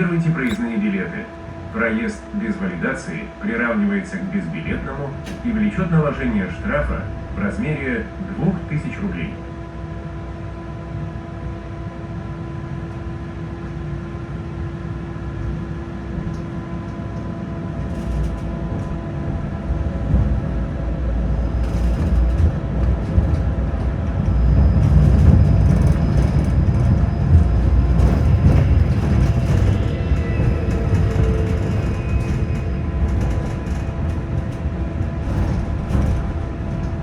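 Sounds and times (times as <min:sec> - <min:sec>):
tram wheels rumbling: 0:00.0 - 0:37.0
clacks and rattles: 0:17.8 - 0:19.1, 0:21.4 - 0:37.0.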